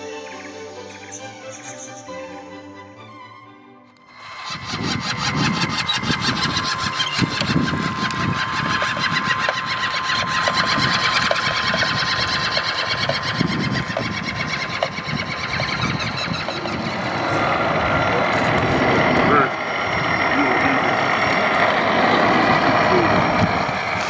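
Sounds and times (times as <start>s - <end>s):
electric motor and gearbox whining: 4.2s - 15.0s.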